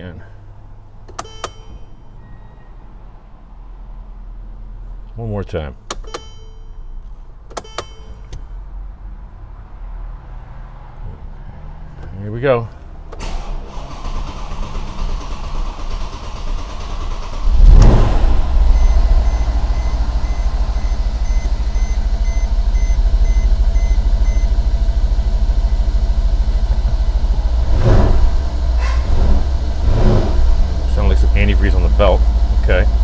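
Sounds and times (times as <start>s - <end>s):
car engine starting and idling: 5.8s - 33.0s
dashboard chime beeping: 18.6s - 24.5s.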